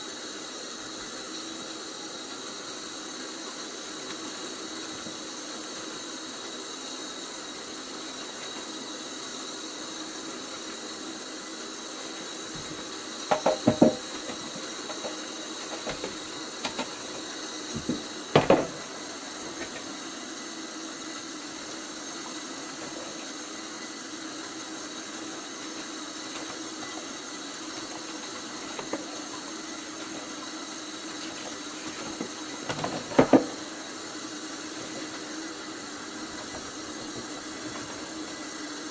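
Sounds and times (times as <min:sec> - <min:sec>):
steady hiss: 0:00.0 - 0:38.9
dishes clattering at a sink: 0:12.6 - 0:20.0, 0:26.2 - 0:34.0.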